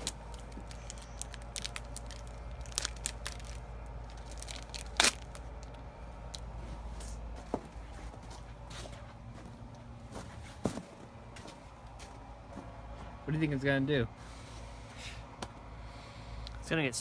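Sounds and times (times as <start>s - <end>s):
plastic packaging cracking: 0.0s - 5.8s
plastic packaging crinkling: 0.0s - 6.4s.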